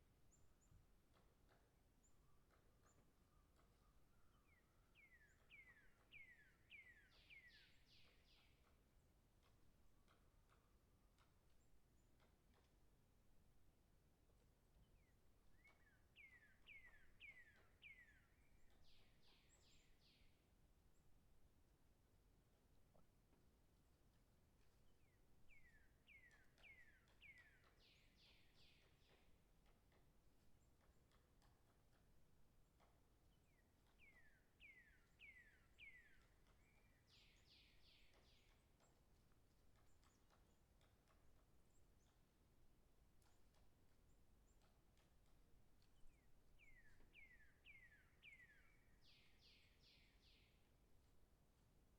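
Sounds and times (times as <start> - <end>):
faint songbird whistles: 2.2 - 8.5, 15.5 - 20.3, 25.1 - 29.2, 33.5 - 38.6, 46.0 - 50.6.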